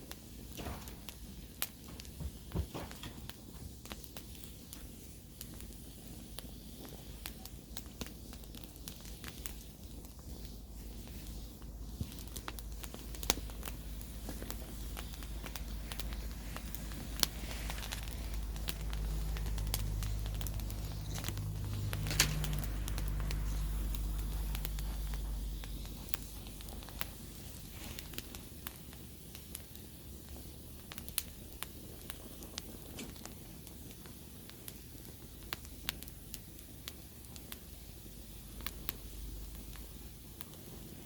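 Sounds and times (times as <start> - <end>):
campfire crackling: 0.0 - 41.0
low hum: 13.0 - 27.4.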